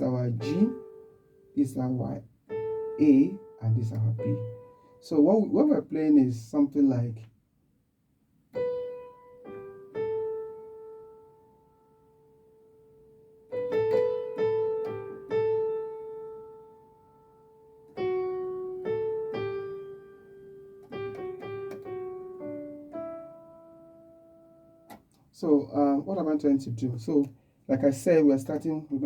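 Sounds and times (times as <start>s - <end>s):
piano playing single notes: 0.0s - 1.7s, 2.5s - 5.0s.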